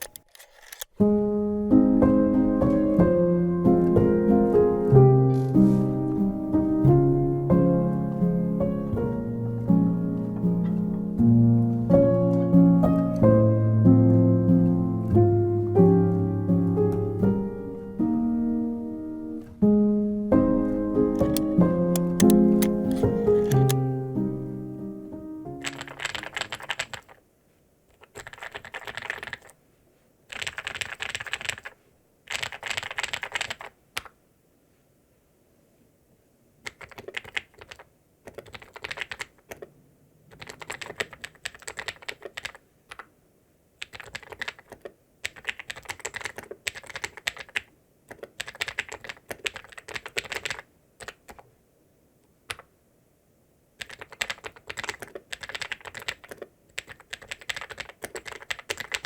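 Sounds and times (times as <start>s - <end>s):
mechanical keyboard typing: 21.1s - 23.9s, 25.5s - 27.2s, 28.0s - 29.5s, 30.3s - 34.1s, 36.6s - 39.7s, 40.3s - 43.0s, 43.8s - 51.5s, 53.8s - 59.0s.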